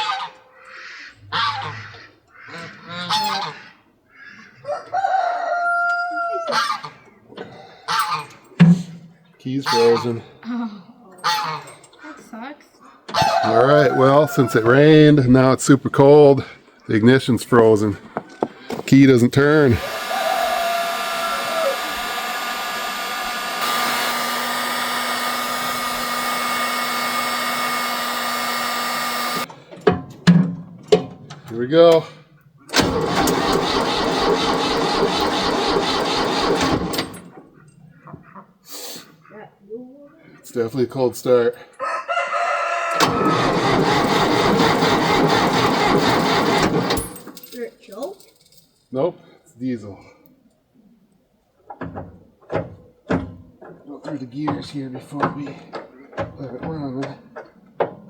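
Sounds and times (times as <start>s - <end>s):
geese honking: 0.0s - 5.4s, 6.3s - 7.1s, 7.9s - 8.4s, 9.6s - 10.2s, 11.2s - 11.7s, 13.1s - 14.9s
hot-air blower running: 19.6s - 29.5s, 43.0s - 47.0s.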